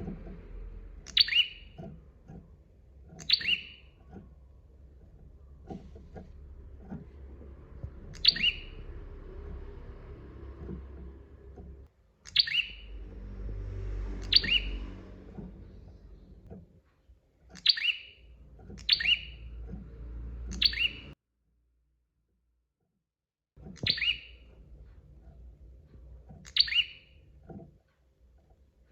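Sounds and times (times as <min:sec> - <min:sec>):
low steady rumble: 0:00.0 - 0:17.5, 0:18.1 - 0:21.2.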